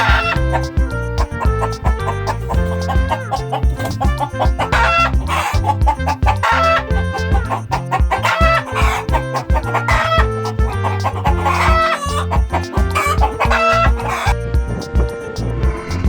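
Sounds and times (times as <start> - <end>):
chicken clucking: 0.0 - 0.4, 2.5 - 14.4
background music with beat: 0.0 - 16.0.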